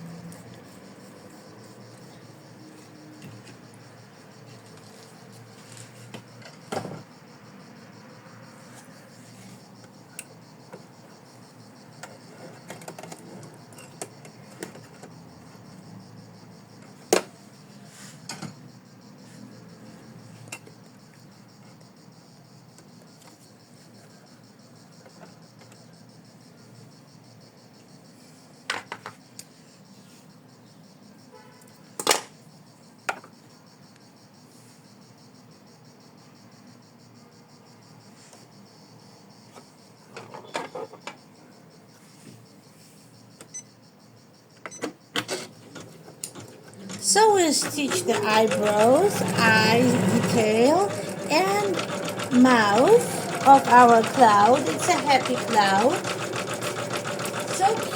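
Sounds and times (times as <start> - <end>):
embroidery machine stitching: 45.7 - 57.9.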